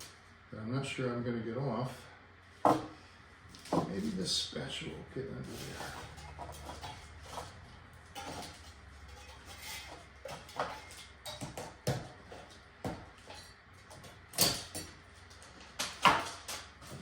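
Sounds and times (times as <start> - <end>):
spatula scraping and tapping: 5.5 - 14.9.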